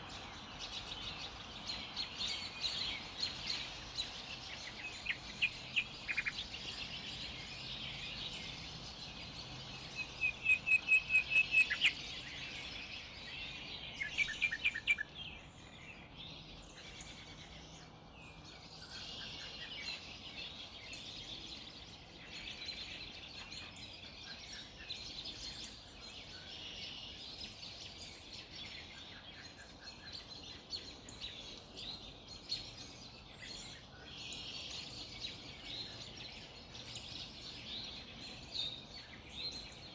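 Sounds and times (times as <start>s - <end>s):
birds singing and calling: 0.0s - 39.9s
bird trill: 9.7s - 13.0s, 14.0s - 15.2s.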